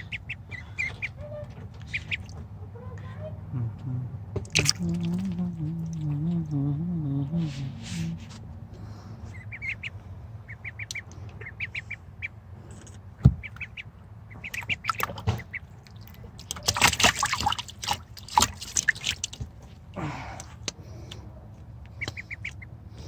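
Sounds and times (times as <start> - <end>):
ducklings peeping: 0.0 - 6.6, 8.8 - 19.4, 20.7 - 23.0
splashing in bathwater: 4.5 - 6.1, 14.5 - 19.5.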